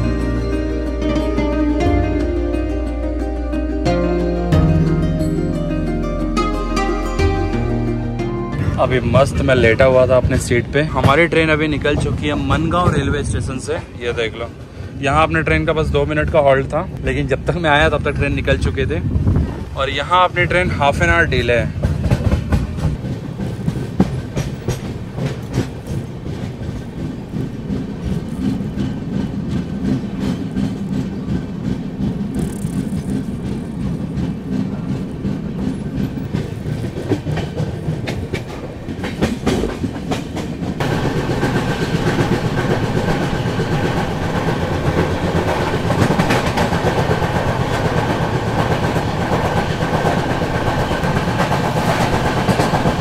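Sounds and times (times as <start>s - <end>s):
train wheels rumbling and clicking: 8.6s - 53.0s.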